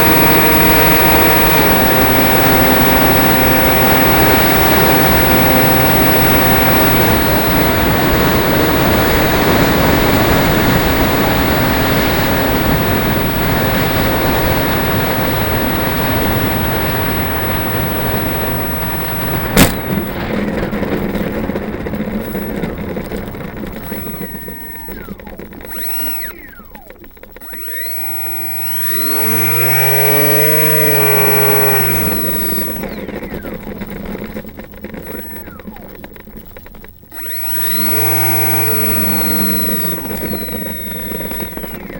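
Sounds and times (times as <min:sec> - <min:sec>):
model plane propeller and motor: 0:00.0 - 0:41.9
sharp click: 0:17.9 - 0:20.3.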